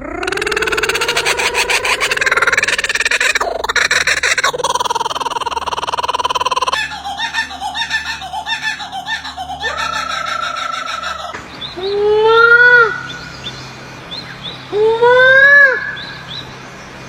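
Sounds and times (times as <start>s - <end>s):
bird chattering: 0.0s - 11.4s
bird laugh-like upward notes: 0.0s - 11.4s.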